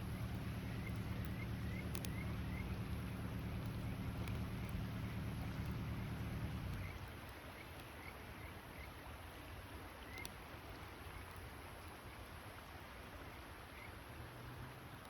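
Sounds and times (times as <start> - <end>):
sharp crack: 0.3 - 2.6.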